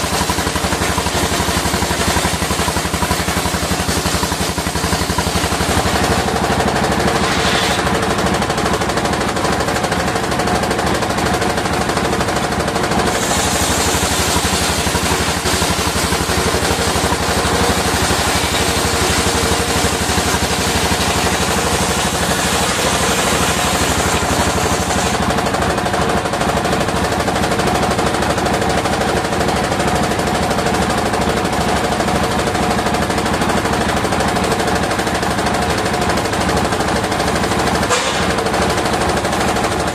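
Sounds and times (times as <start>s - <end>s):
circular sawmill rattling: 0.0s - 39.9s
saw blade hissing through wood: 7.1s - 7.9s, 13.1s - 16.1s, 18.1s - 25.2s.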